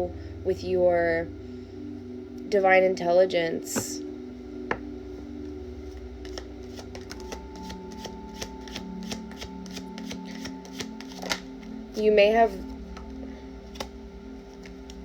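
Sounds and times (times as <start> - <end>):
cards being shuffled: 5.8 - 11.8, 12.9 - 15.0.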